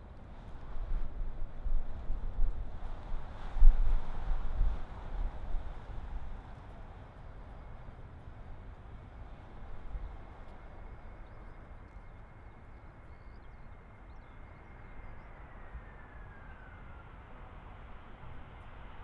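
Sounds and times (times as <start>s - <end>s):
wind rumbling on microphone: 0.0s - 11.5s.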